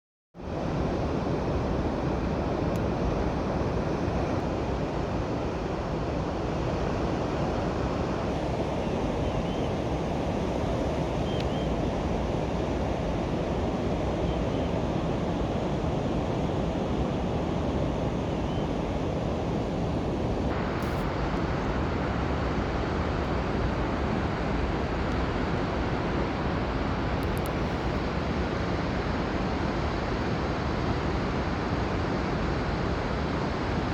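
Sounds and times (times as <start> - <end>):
steady rushing noise: 19.5 - 33.9.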